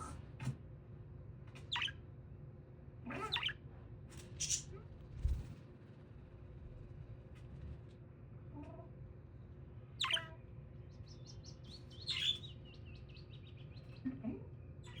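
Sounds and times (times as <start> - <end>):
budgie calls: 3.1 - 3.6, 10.0 - 10.3.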